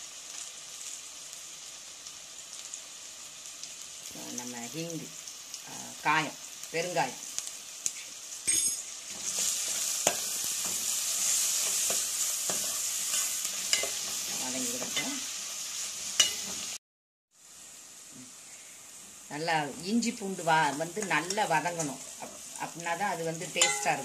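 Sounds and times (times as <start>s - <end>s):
vegetables sizzling in oil: 0.0s - 24.0s
spoon clinking against pan: 23.6s - 24.0s.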